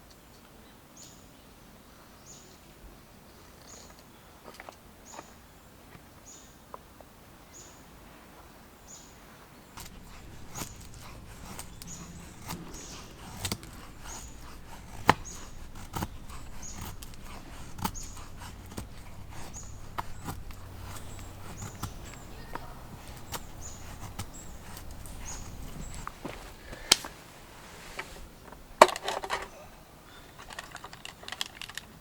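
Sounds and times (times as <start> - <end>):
small bird chirping: 9.8 - 26.3
sharp clicks and knocks: 9.8 - 27.1.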